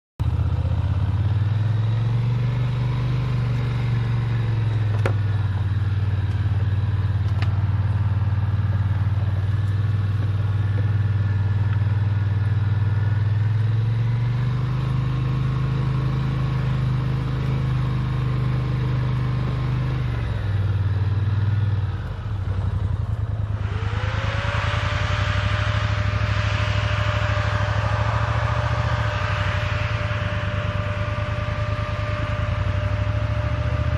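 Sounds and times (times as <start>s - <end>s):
rising whine: 0.2s - 33.9s
vehicle engine revving: 0.2s - 33.9s
hiss: 23.4s - 32.6s.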